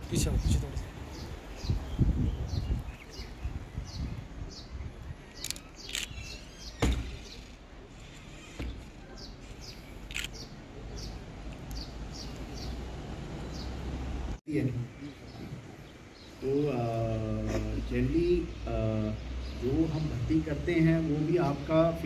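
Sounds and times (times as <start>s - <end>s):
small bird chirping: 0.4s - 12.8s
sharp knocks: 6.8s - 7.4s.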